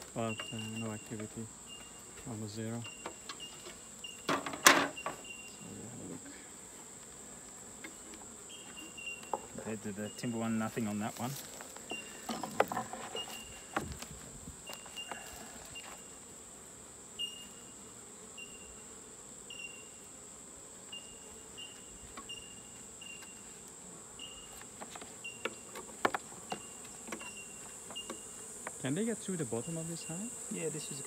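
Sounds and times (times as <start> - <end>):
high insect trill: 0.0 - 6.5, 7.8 - 31.0
honeybees buzzing: 0.0 - 31.0
hive frames knocking and clicking: 2.9 - 5.2, 12.2 - 15.2, 24.6 - 28.8.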